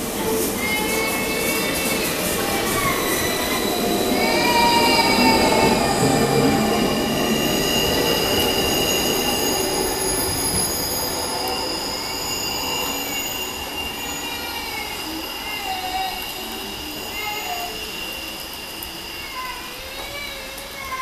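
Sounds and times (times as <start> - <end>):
train wheels squealing: 0.0 - 21.0.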